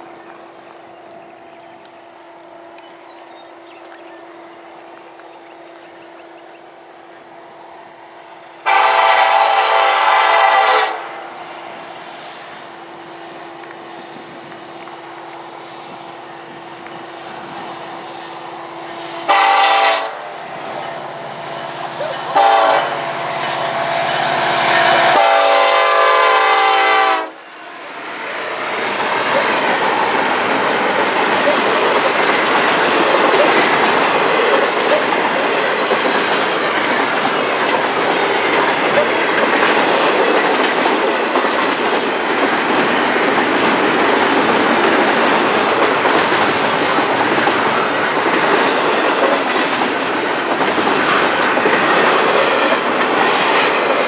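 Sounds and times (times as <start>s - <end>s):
rumble and clatter of train cars: 0.0s - 54.0s
train air horn blasts: 8.6s - 11.3s, 19.1s - 20.5s, 21.6s - 27.4s.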